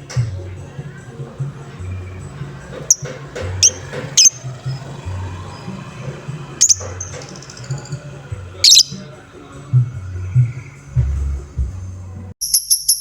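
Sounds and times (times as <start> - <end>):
lovebird squeaking: 1.3 - 6.0, 6.6 - 9.2.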